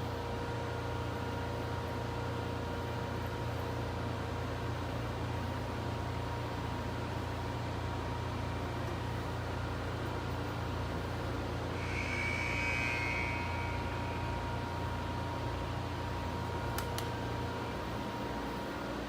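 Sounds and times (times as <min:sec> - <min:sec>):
machinery hum with whine: 0:00.0 - 0:19.0
high whistling tone: 0:11.8 - 0:15.6.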